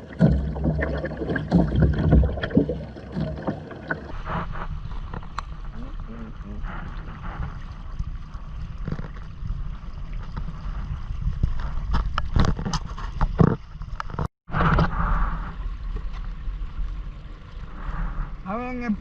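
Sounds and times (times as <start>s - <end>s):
knocks and splashes: 0.0s - 5.9s
water sloshing against hull: 0.0s - 19.0s
wind buffeting microphone: 4.2s - 13.4s.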